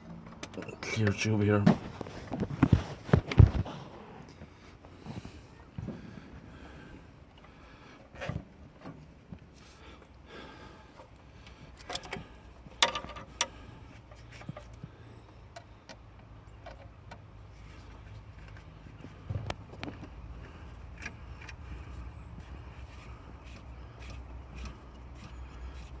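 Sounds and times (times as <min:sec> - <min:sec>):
clicks and knocks of hand tools: 0:11.8 - 0:13.6.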